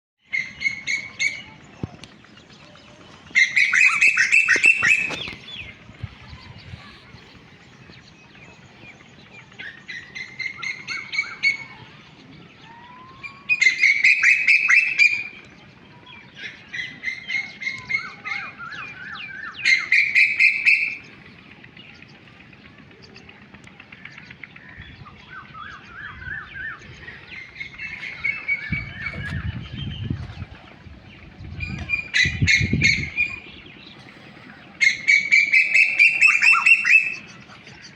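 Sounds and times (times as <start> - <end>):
soft bird trills: 0.2 - 37.9
bird calling in rapid bursts: 3.4 - 5.7, 9.6 - 12.0, 12.8 - 15.4, 16.4 - 21.2, 31.2 - 34.0, 34.7 - 37.9.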